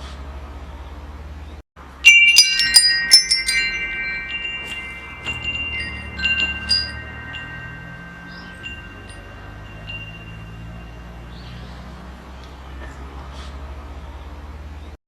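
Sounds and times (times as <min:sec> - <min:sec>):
metal wind chimes ringing: 0:01.8 - 0:12.1.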